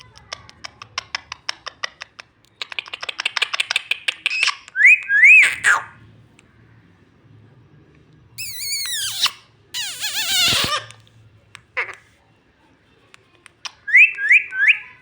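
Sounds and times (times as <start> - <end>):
parrot clicking chirps: 0.2 - 5.1
parrot whistles: 8.4 - 10.8.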